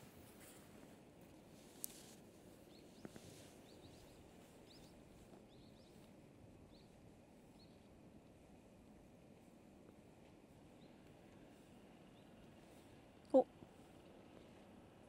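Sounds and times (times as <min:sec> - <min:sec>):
faint high bird chirps: 0:02.7 - 0:06.1, 0:06.7 - 0:07.9.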